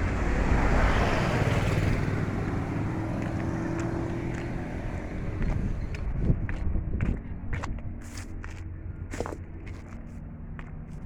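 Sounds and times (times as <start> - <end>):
diesel truck engine running: 0.0 - 6.2.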